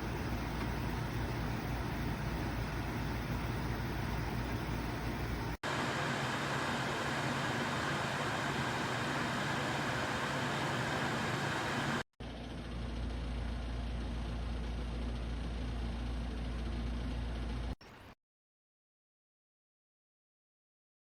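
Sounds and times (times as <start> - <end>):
air conditioner running: 0.0 - 12.0.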